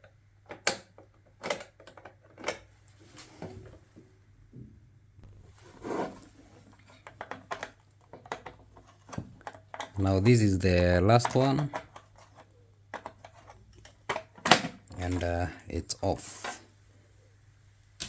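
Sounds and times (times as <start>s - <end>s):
small parts clicking and tapping: 0.0s - 2.7s, 7.0s - 15.4s.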